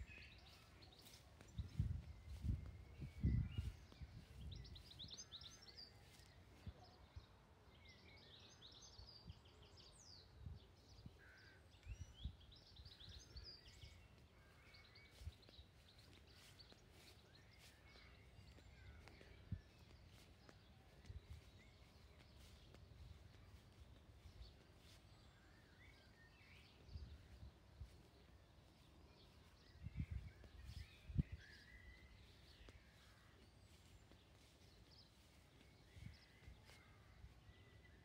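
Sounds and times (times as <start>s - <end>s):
faint birdsong chirping: 0.0s - 38.0s.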